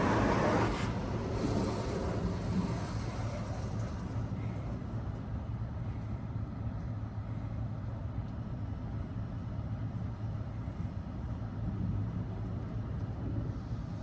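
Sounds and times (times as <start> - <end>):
car wash motors humming: 0.0 - 5.3.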